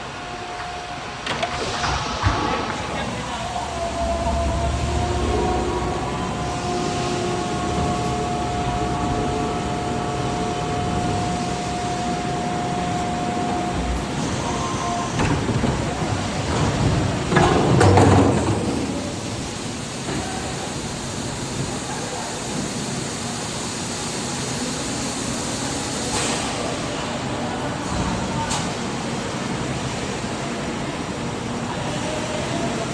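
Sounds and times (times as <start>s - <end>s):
machine running: 0.0s - 21.2s.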